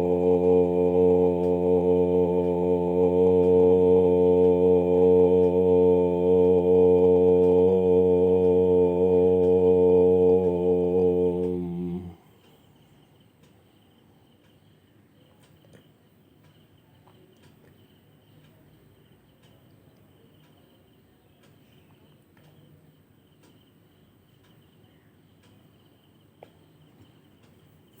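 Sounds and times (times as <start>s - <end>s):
soft ticks: 1.3s - 1.6s, 6.4s - 28.0s.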